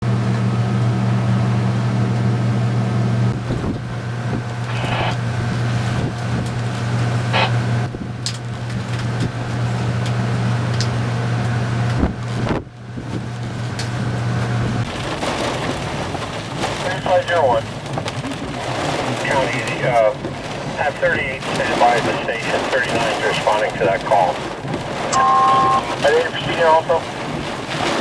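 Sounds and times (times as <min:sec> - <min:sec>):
road and wind noise: 0:01.6 - 0:28.0
vehicle hum from inside: 0:24.4 - 0:26.1.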